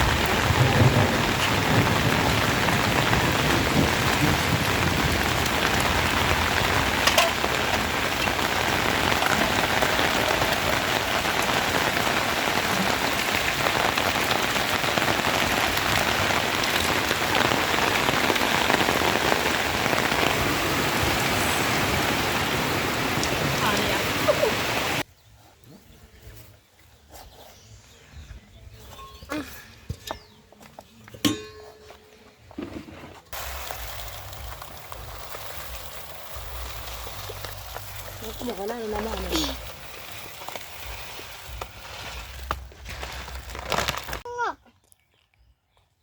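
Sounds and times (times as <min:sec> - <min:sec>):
rain falling: 0:00.0 - 0:25.1, 0:33.3 - 0:44.3.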